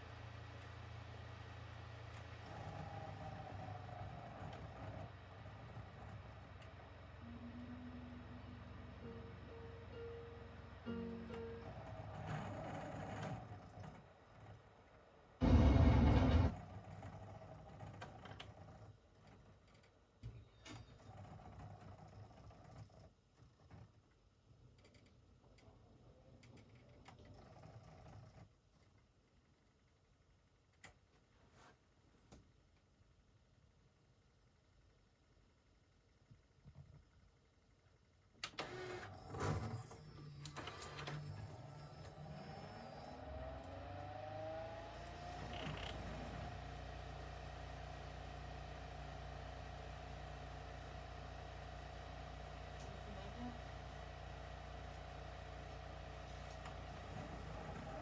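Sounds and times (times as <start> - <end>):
motor hum with rising whine: 0.0 - 18.2, 38.6 - 58.0.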